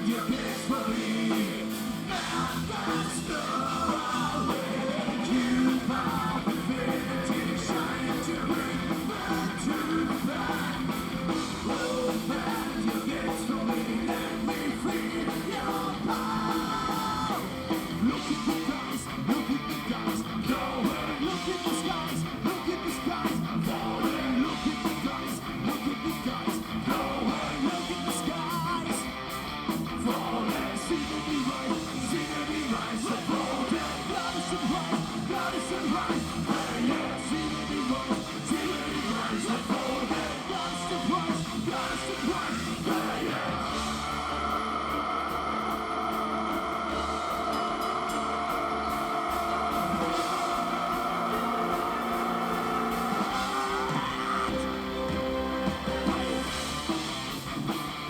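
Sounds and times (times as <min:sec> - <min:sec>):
person singing: 0:00.0 - 0:29.1, 0:30.0 - 0:57.0
live heavy metal band playing: 0:00.0 - 0:58.0.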